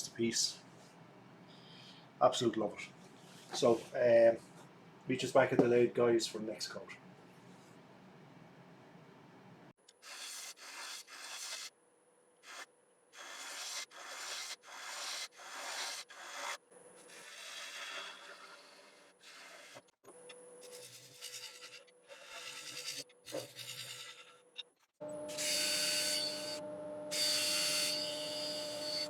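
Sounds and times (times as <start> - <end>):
faint lathe hum: 25.0 - 29.0.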